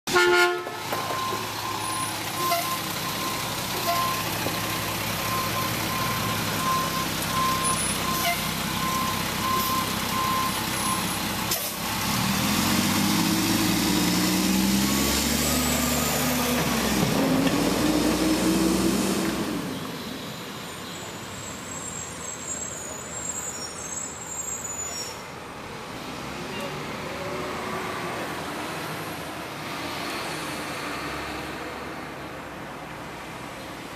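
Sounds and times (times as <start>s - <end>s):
truck reversing beeper: 0.7s - 11.8s
diesel engine revving: 0.8s - 20.5s.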